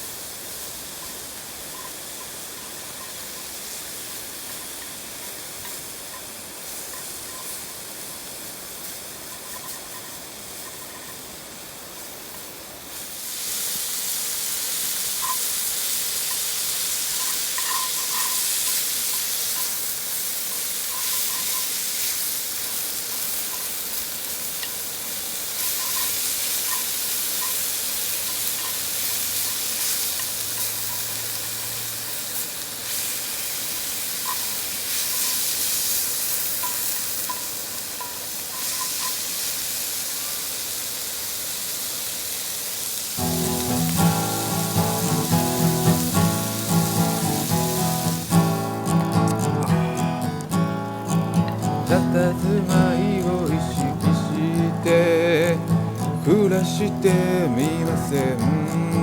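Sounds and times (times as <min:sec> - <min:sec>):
food sizzling in a pan: 0:00.0 - 0:59.0.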